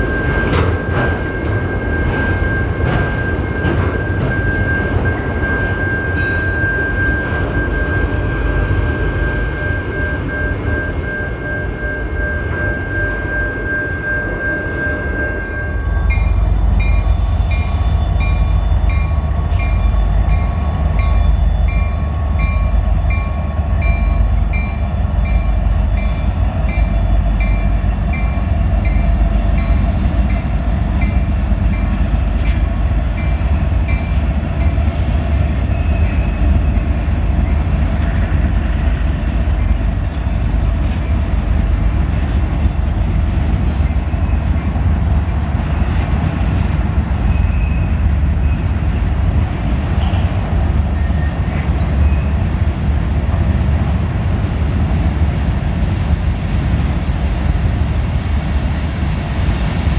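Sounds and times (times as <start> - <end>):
freight train rumbling past: 0.0 - 59.9
repeating ringing tone: 1.7 - 16.3.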